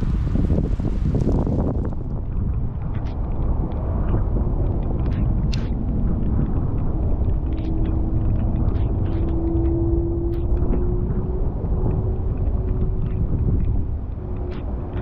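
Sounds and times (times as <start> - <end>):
steady rain: 0.0 - 9.3.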